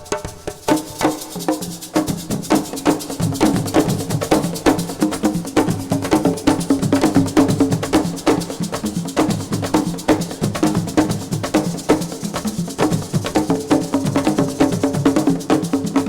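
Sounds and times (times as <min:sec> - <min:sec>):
clapper percussion: 0:00.0 - 0:16.0
drums playing fast rhythm: 0:00.0 - 0:16.0.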